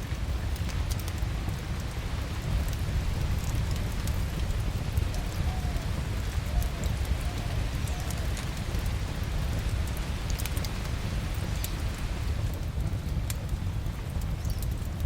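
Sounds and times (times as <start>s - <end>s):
fireplace crackling: 0.0s - 15.0s.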